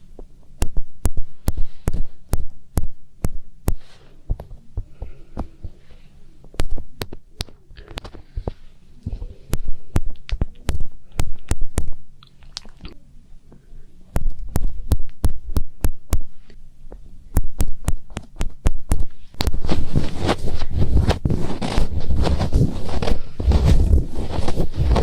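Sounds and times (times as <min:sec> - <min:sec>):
fingertips tapping on microphone: 0:00.2 - 0:05.8, 0:06.4 - 0:12.1, 0:14.1 - 0:16.4, 0:17.3 - 0:25.0
fingers rubbing and scratching: 0:17.6 - 0:25.0.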